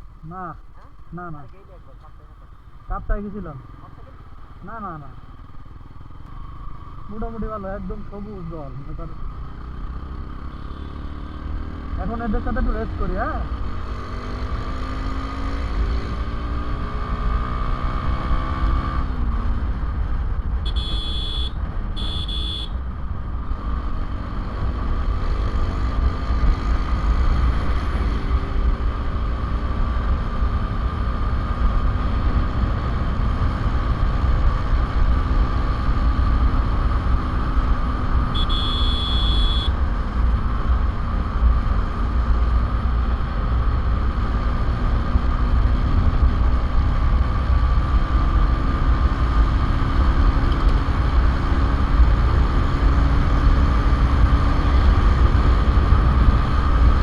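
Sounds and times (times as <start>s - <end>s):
traffic engines rumbling: 0.0s - 57.0s
vehicle horn beeping: 10.5s - 11.5s, 20.6s - 22.8s, 38.3s - 39.8s.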